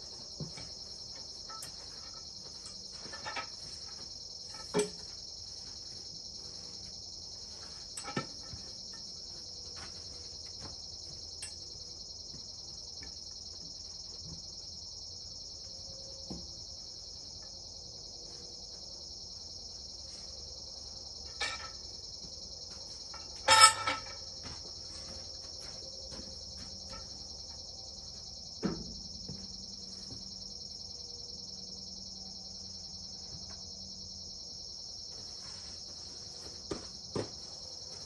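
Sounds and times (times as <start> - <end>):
knocks and clanks: 0.0 - 5.2, 7.9 - 9.1, 21.3 - 21.9, 23.1 - 24.7, 28.6 - 29.6
insects chirring: 0.0 - 38.0.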